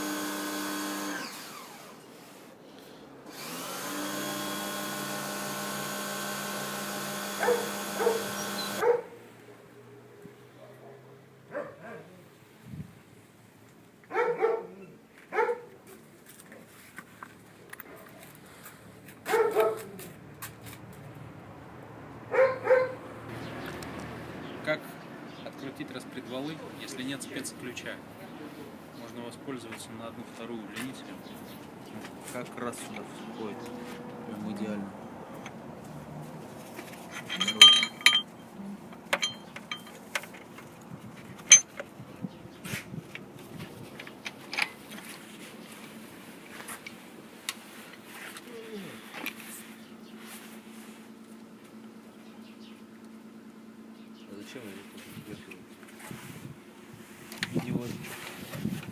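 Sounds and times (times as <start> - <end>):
dog barking: 7.4 - 9.2, 10.6 - 12.2, 14.1 - 15.7, 19.2 - 20.0, 22.3 - 23.0
steel tools clinking on metal: 37.1 - 38.4, 39.1 - 40.0, 41.5 - 41.8.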